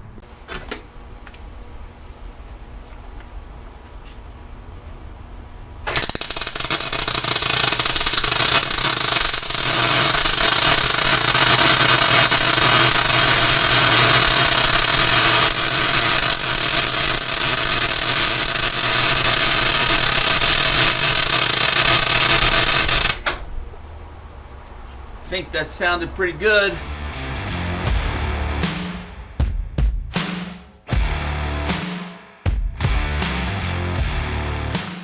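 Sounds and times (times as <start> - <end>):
welder arc crackling sizzle: 5.9 - 23.2.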